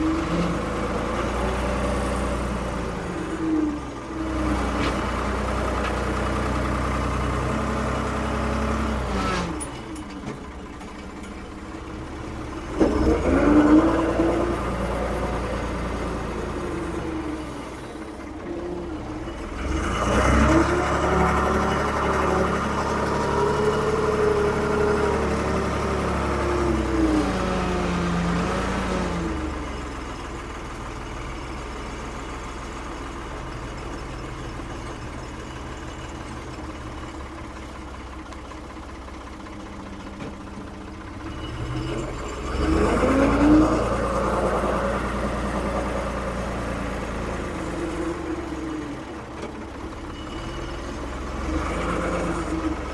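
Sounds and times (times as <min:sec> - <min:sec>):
diesel engine revving: 0:00.0 - 0:10.0, 0:12.0 - 0:30.1, 0:41.0 - 0:52.9.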